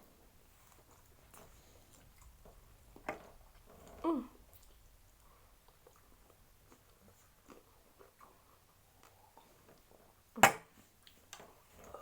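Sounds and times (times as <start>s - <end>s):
faint chewing and mouth clicks: 0.0s - 12.0s.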